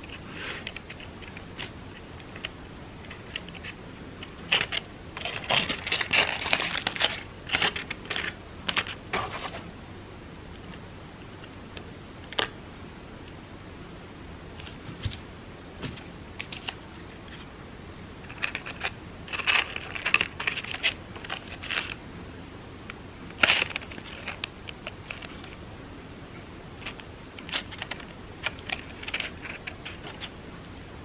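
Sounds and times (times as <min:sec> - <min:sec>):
crepe paper crinkling: 0:03.1 - 0:09.6, 0:26.8 - 0:30.9.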